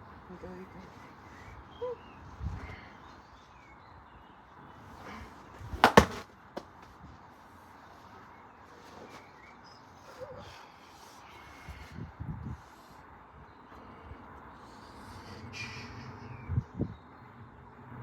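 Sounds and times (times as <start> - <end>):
faint bird chirps: 0.5 - 5.2, 14.6 - 17.3
hard knocks: 5.8 - 6.7.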